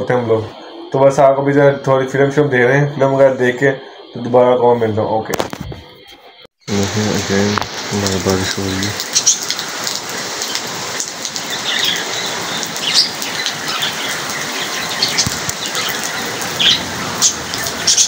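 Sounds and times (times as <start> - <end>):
hum-like voice: 6.7 - 9.0
heavy rain on roofs and leaves: 6.7 - 18.0
high bird chirps: 8.4 - 18.0.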